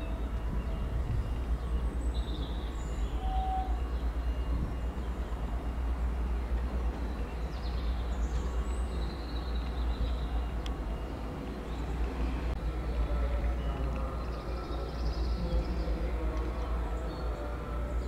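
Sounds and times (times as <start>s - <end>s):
train rumble: 0.0s - 18.0s.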